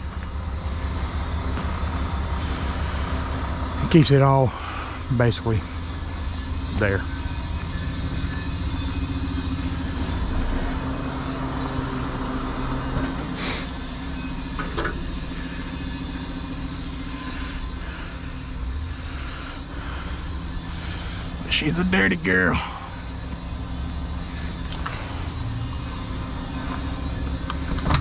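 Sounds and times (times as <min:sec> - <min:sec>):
diesel engine idling: 0:00.0 - 0:28.0
short hiss: 0:13.4 - 0:13.7.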